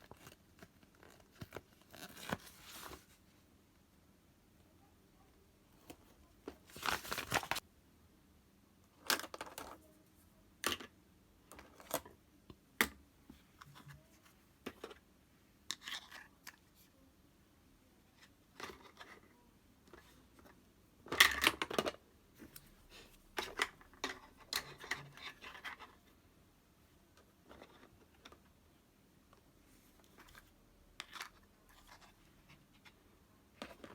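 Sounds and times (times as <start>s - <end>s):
hands rustling crafting materials: 6.5s - 7.6s.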